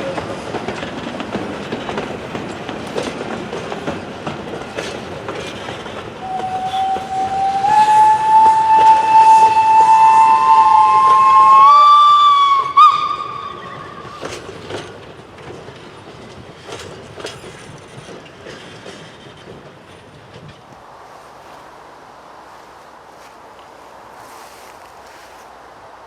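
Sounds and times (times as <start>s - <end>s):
steam locomotive whistle: 6.2s - 14.3s.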